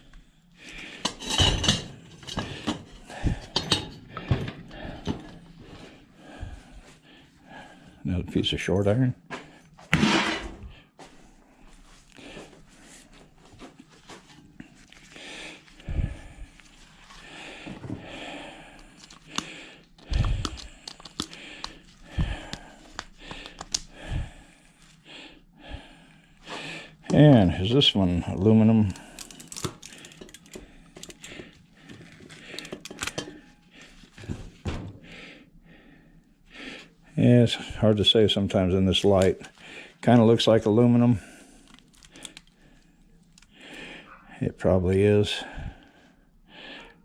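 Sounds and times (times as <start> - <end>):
scrap iron clattering down: 9.9 - 10.6
clicks of handled parts: 29.2 - 31.3, 32.5 - 33.4.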